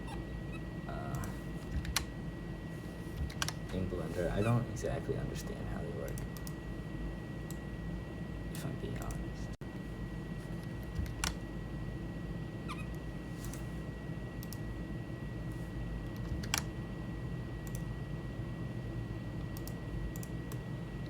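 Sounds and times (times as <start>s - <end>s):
low background hum: 0.0s - 21.0s
computer mouse clicks: 3.2s - 3.6s, 6.1s - 6.6s, 14.4s - 14.6s, 17.6s - 17.9s, 19.4s - 20.6s
keyboard key presses: 16.1s - 16.7s.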